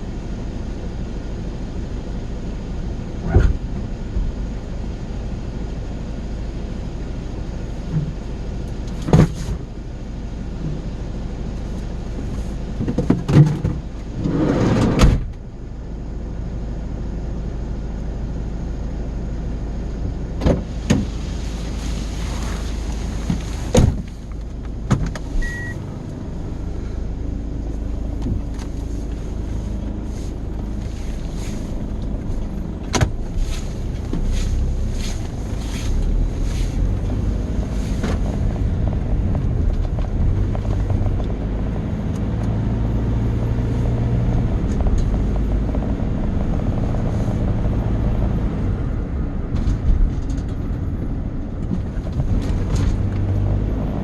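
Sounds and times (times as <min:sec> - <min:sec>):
car cabin road rumble: 0:00.0 - 0:54.0
rush of noise: 0:25.2 - 0:49.8.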